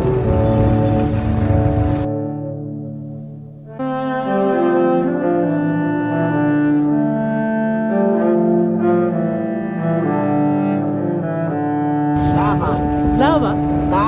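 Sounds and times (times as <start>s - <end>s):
bowed strings slow notes: 0.0s - 3.1s, 12.2s - 14.0s.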